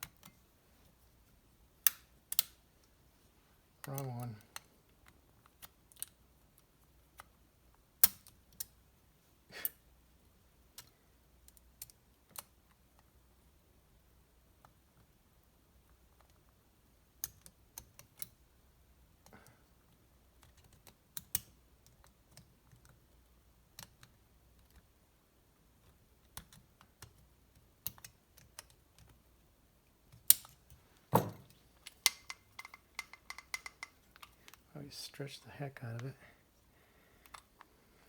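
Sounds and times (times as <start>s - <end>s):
loud knock: 31.1s - 31.5s
small metal parts clicking: 31.8s - 34.6s.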